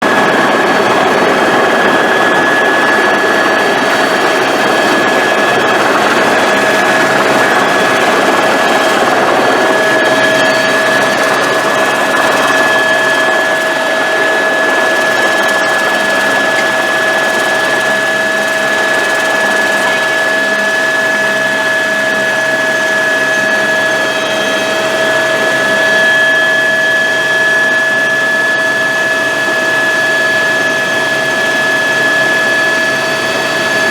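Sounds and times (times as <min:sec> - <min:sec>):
high whining tones: 0:00.0 - 0:26.8
helicopter in flight: 0:00.0 - 0:33.9.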